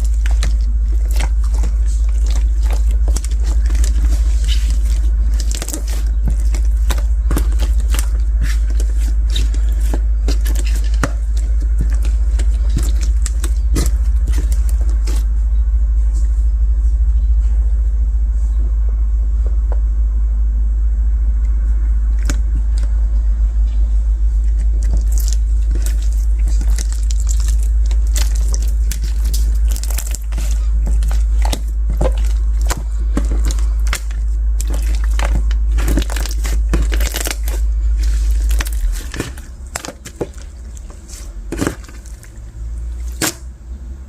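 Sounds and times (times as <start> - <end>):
steady low hum: 0.0 - 44.0
slime beads crackling and clicking: 24.9 - 40.3.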